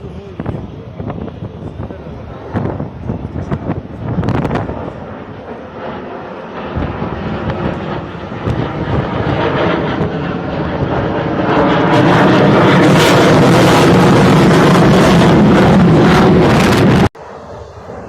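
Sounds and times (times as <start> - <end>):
aircraft engine rushing: 0.0 - 18.0.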